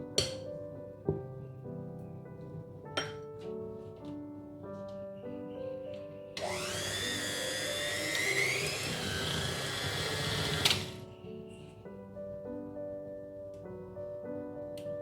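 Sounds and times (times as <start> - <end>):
soft piano music: 0.0 - 15.0
electric mixer motor whine: 6.4 - 11.1.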